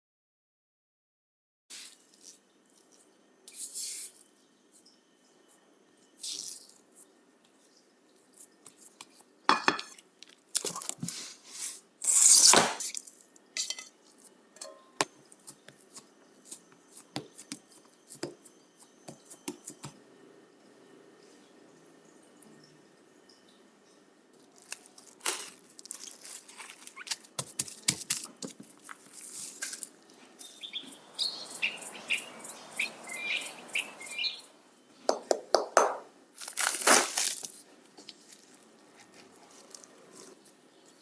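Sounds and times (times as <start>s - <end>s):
utensils knocking against dishes: 14.6s - 15.0s.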